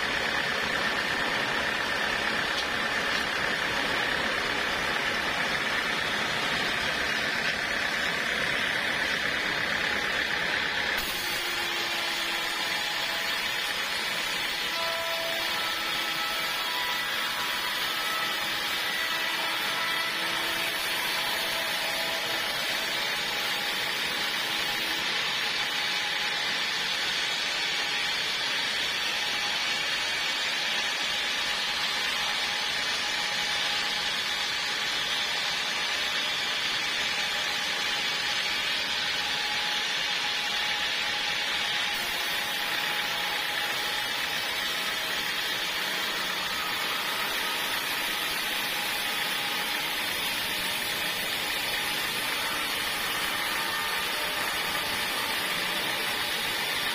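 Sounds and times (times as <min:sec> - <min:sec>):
portable sawmill running: 0:00.0 - 0:56.9.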